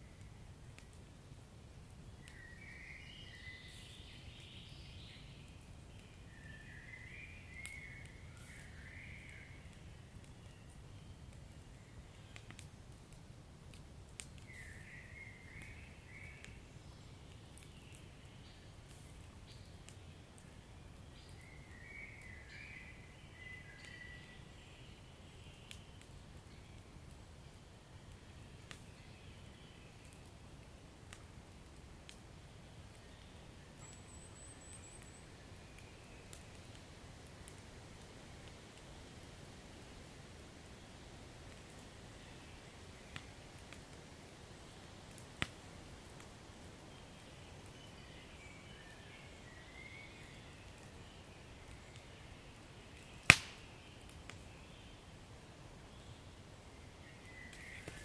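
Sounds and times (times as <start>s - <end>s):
fire crackling and popping: 0.2s - 2.4s, 7.4s - 22.4s, 25.4s - 29.2s, 29.9s - 54.6s, 55.2s - 58.0s
high hiss from fire: 51.6s - 54.6s.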